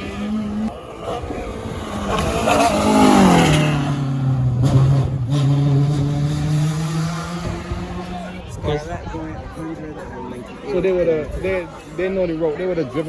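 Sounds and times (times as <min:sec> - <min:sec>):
rally car engine passing by: 0:00.0 - 0:08.5.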